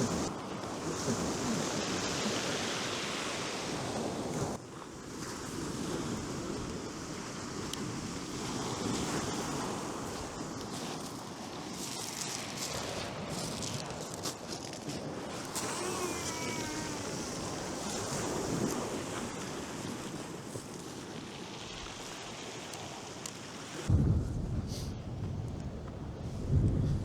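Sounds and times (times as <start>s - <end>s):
surf washing on beach: 0.0s - 24.8s
strong wind: 23.9s - 27.0s
wind buffeting microphone: 23.9s - 27.0s.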